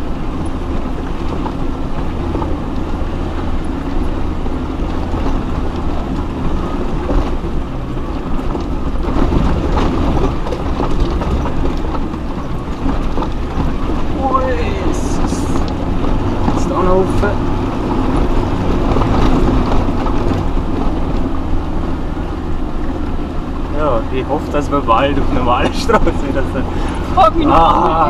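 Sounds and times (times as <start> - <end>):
body and suspension rattling: 0.0 - 28.0
off-road vehicle engine rumble: 0.0 - 28.0.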